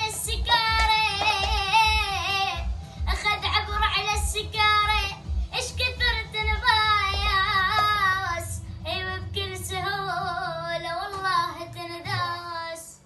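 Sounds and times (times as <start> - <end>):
child singing: 0.0 - 13.0.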